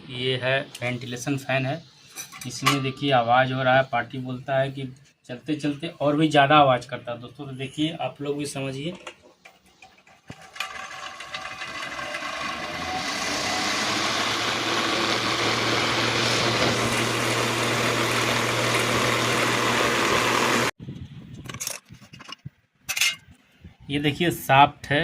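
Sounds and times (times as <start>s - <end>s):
exhaust fan motor hum: 10.6s - 20.7s
loud fan whirring: 10.6s - 20.7s.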